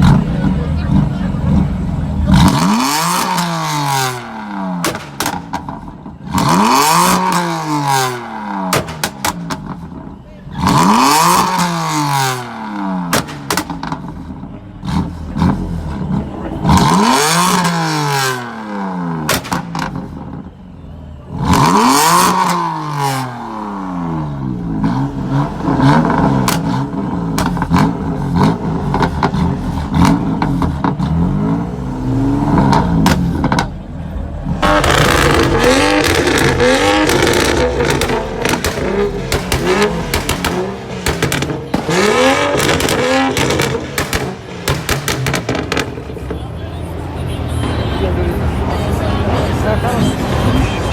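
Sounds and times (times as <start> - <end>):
car engine revving: 0.0 - 50.9
exhaust pops and crackles: 4.8 - 6.7, 8.7 - 10.0, 13.1 - 14.3, 19.3 - 20.5, 26.0 - 31.1, 32.6 - 33.8, 34.6 - 46.5.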